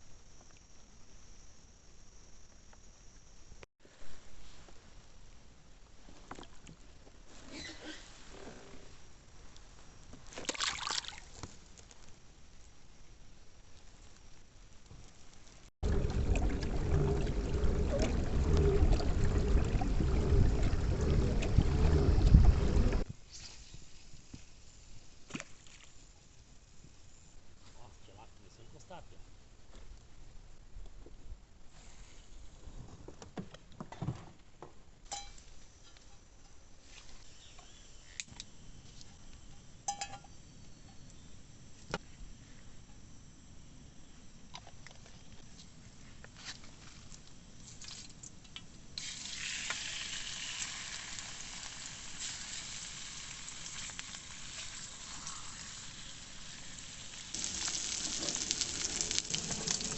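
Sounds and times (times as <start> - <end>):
faint outdoor background: 0.0 - 59.9
small splashes and knocks: 10.3 - 11.6
water rumbling against kayak: 15.8 - 23.1.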